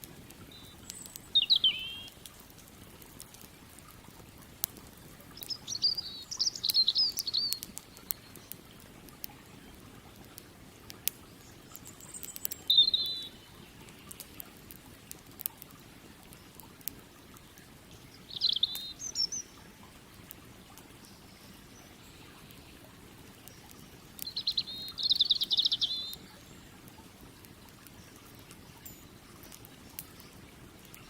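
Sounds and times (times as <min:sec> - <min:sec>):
campfire crackling: 0:00.0 - 0:31.0
small bird chirping trills: 0:00.4 - 0:02.3, 0:05.3 - 0:09.8, 0:11.1 - 0:14.4, 0:17.3 - 0:19.8, 0:20.5 - 0:26.9, 0:27.7 - 0:31.0.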